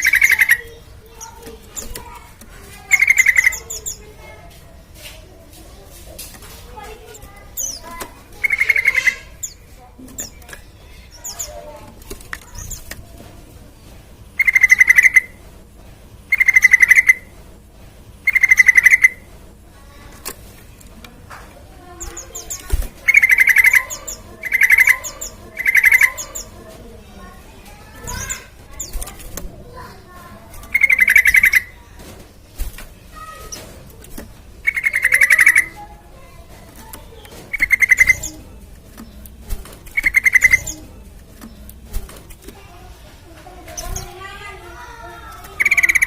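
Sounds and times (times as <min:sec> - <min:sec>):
bird rattling trill: 0:00.0 - 0:04.5, 0:06.2 - 0:13.5, 0:14.4 - 0:15.4, 0:16.3 - 0:17.3, 0:18.2 - 0:20.6, 0:21.8 - 0:42.7, 0:43.6 - 0:46.0
faint bird chirps: 0:14.4 - 0:15.4, 0:16.3 - 0:17.3, 0:18.3 - 0:19.3, 0:22.0 - 0:26.6, 0:34.6 - 0:38.4, 0:39.9 - 0:40.9.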